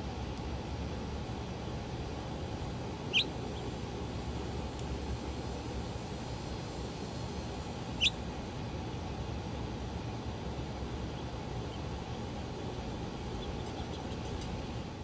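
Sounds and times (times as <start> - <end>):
low background rumble: 0.0 - 15.0
songbird chirp sweeping upward: 3.1 - 3.7, 7.9 - 8.2.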